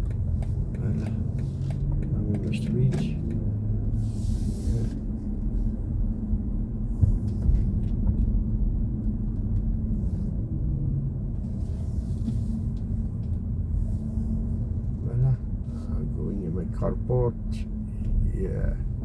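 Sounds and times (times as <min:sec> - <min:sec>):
car road and tyre rumble: 0:00.0 - 0:19.0.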